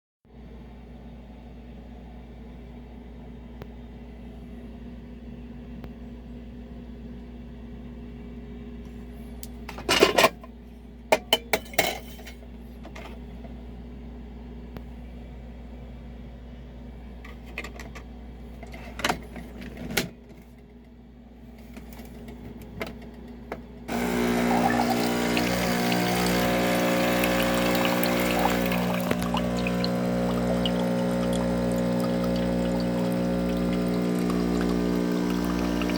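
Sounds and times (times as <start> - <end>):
coffee maker humming: 23.9 - 35.9
coffee maker pump running: 23.9 - 35.9
coffee pouring into cup: 23.9 - 35.9.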